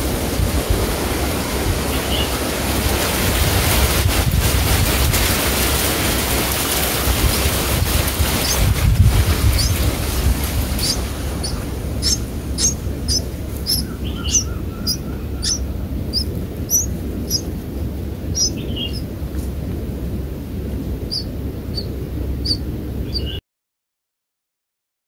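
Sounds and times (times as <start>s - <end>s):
wind rumble on microphone: 0.0s - 23.4s
small bird chirping: 8.2s - 8.8s, 9.4s - 17.6s, 18.3s - 19.1s, 21.0s - 23.4s.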